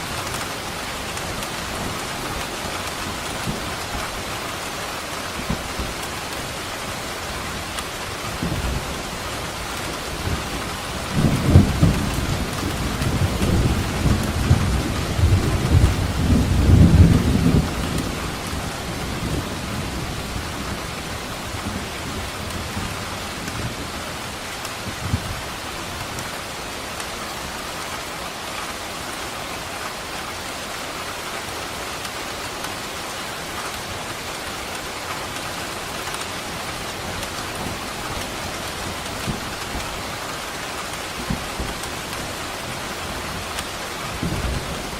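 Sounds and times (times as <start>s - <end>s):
heavy rain: 0.0s - 44.9s
thunder rumbling: 8.2s - 22.9s.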